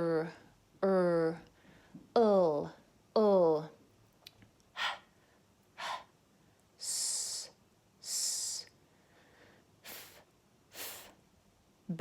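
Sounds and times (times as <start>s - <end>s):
breathy puffs: 4.7s - 5.2s, 5.8s - 6.1s
woman hissing: 4.8s - 5.1s, 5.8s - 6.1s, 6.8s - 8.7s, 9.9s - 11.2s.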